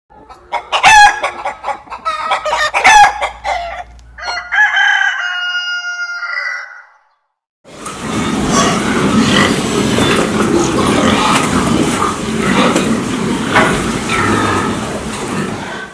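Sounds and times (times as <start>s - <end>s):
chickens clucking: 0.1s - 4.6s, 7.8s - 15.9s
rooster crowing: 2.2s - 7.1s.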